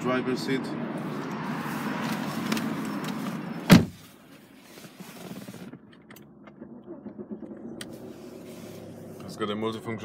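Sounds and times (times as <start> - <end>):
car door thud: 3.6 - 4.1.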